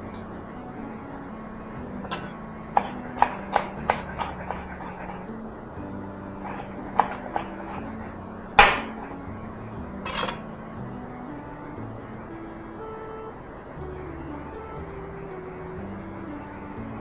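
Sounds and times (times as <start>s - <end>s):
utensils clinking against dishes: 6.4s - 7.9s, 10.1s - 10.4s.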